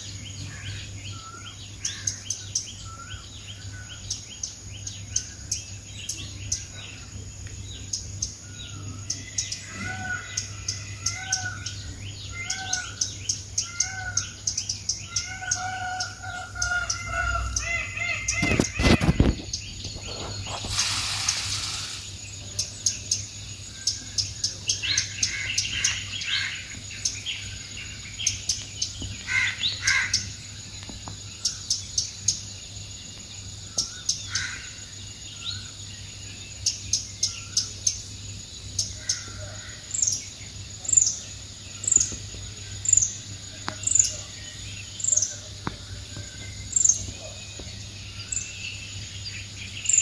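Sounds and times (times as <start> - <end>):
small birds chirping: 0.0 - 50.0
brief rustling: 18.4 - 22.1.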